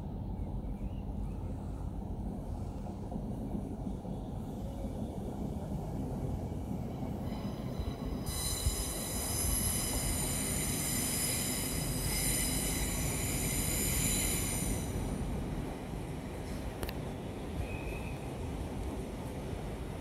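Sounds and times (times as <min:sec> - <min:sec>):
train rumbling on rails: 0:00.0 - 0:20.0
high wheel squeal: 0:07.2 - 0:15.0.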